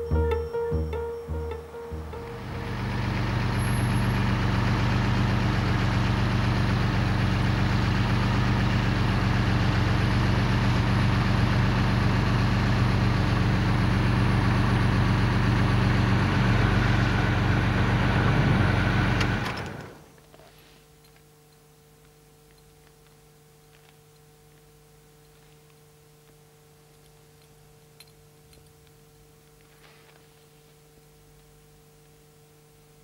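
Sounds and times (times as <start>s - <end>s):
car engine idling: 1.3s - 18.0s.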